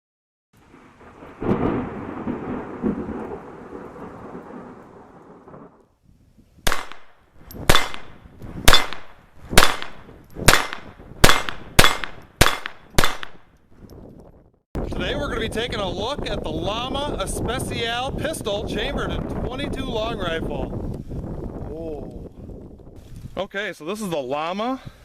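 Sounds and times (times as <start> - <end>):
pistol shots: 6.7 - 13.4.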